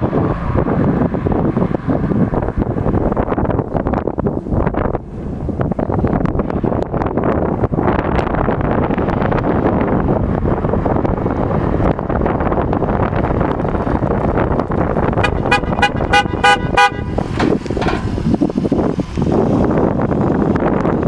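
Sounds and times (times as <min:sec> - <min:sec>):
car wind and road noise: 0:00.0 - 0:21.0
vehicle horn tooting: 0:15.2 - 0:18.0.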